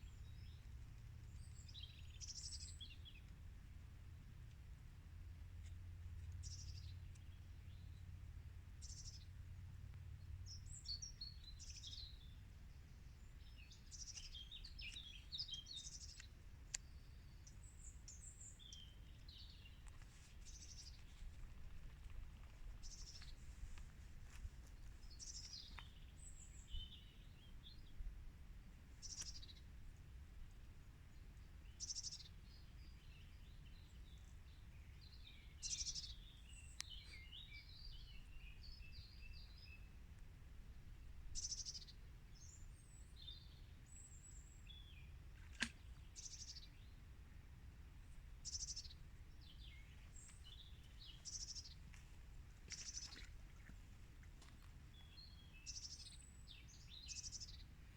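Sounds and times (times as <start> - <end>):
birdsong: 0.0 - 4.6, 5.3 - 57.9
low steady rumble: 0.0 - 14.1.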